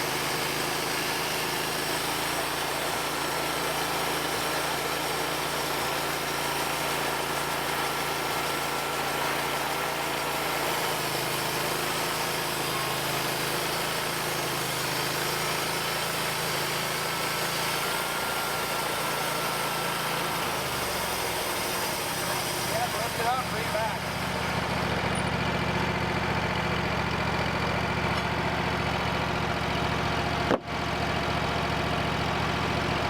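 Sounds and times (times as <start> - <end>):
saw blade cutting log: 0.0 - 25.5
sawmill engine running: 0.0 - 33.0.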